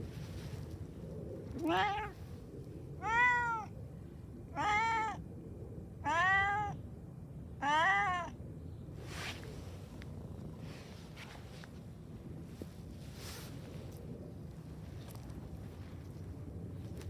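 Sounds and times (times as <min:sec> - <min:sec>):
cat meowing: 0:01.6 - 0:02.2, 0:03.0 - 0:03.7, 0:04.6 - 0:05.2, 0:06.0 - 0:06.8, 0:07.6 - 0:08.4.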